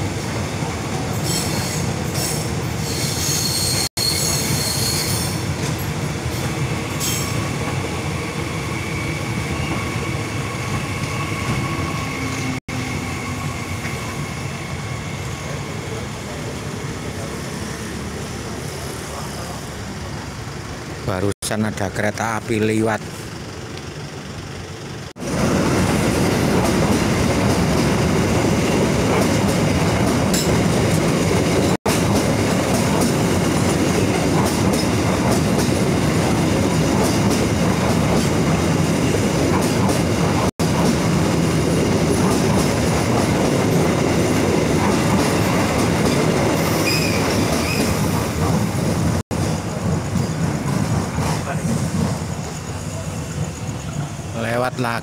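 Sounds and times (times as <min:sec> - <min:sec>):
train wheels rumbling on rails: 0:00.0 - 0:21.0, 0:22.8 - 0:55.0
faint high squeal: 0:01.3 - 0:05.4, 0:46.7 - 0:48.0.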